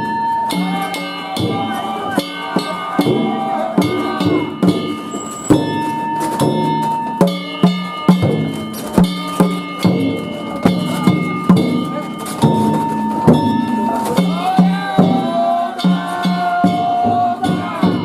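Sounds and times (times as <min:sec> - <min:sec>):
metal gongs clanging: 0:00.0 - 0:16.9
taiko drum steady beat: 0:00.0 - 0:18.0.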